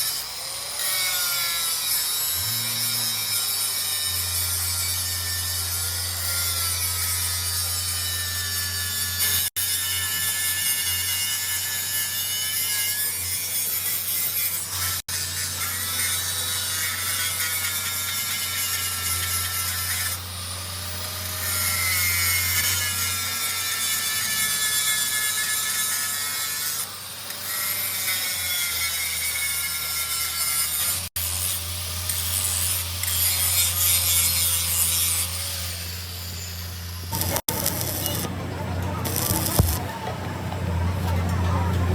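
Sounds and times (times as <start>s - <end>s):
metal cutting squeal: 0.0s - 41.9s
electric motor hum: 31.0s - 41.9s.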